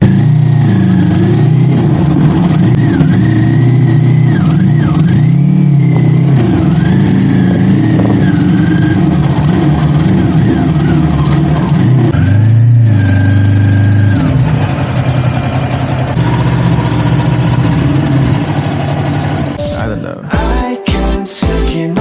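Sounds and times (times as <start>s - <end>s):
motorcycle engine revving: 0.0s - 19.6s.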